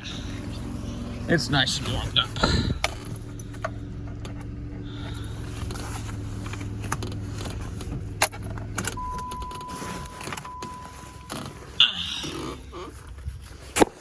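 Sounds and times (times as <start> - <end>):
car engine idling: 0.0 - 14.0
car key clicks: 8.2 - 11.6
electronic warning chime: 9.0 - 12.2.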